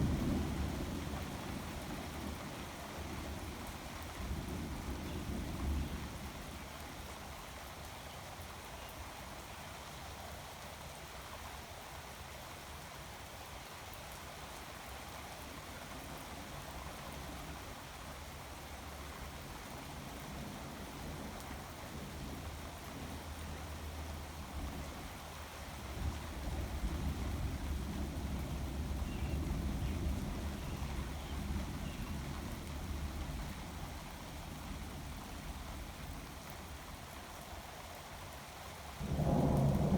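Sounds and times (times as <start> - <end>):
low rumble of thunder: 0.0 - 6.4, 19.3 - 37.1, 39.0 - 39.9
steady rain: 0.0 - 39.9.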